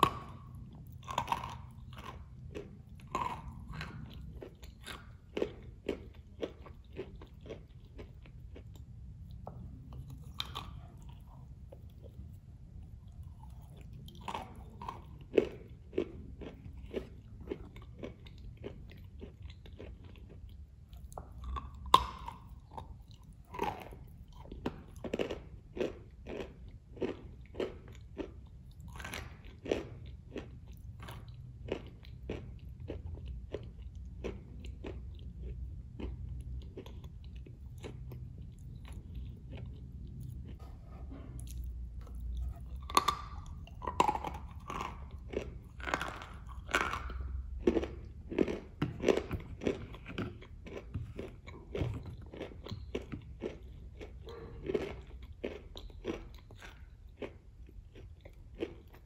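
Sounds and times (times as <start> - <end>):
chewing soft cookie: 0.0 - 59.0.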